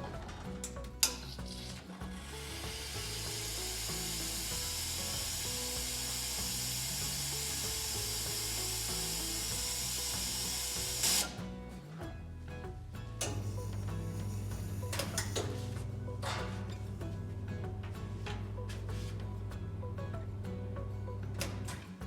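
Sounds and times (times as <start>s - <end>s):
background music: 0.0s - 22.0s
espresso machine water hiss: 2.2s - 11.4s.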